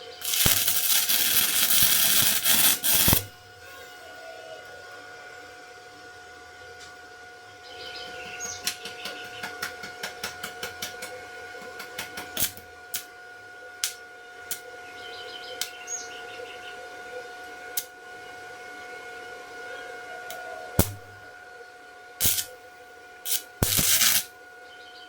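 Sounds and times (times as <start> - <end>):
high whine: 0.0 - 3.4.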